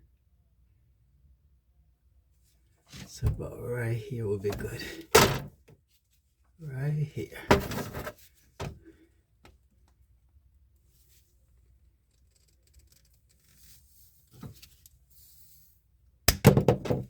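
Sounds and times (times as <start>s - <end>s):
handling plastic pipe: 4.4s - 5.7s, 7.4s - 9.6s.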